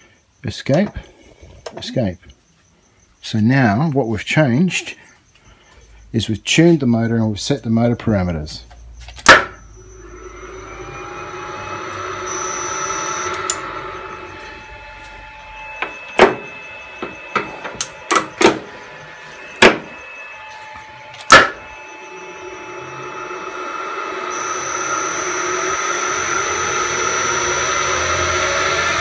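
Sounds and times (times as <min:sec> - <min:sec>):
lathe motor whining: 0:09.3 - 0:29.0.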